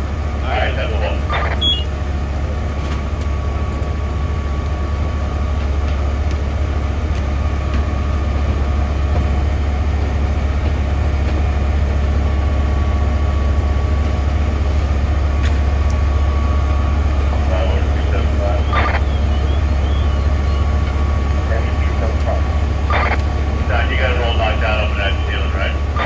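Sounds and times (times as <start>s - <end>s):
thin constant whine: 0.0s - 2.7s, 12.2s - 26.0s
diesel engines rumbling: 0.0s - 26.0s.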